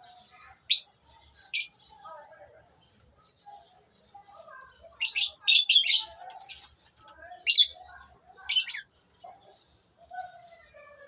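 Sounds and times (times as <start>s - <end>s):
lovebirds shrill chirping calls: 0.6s - 2.0s, 3.6s - 9.0s.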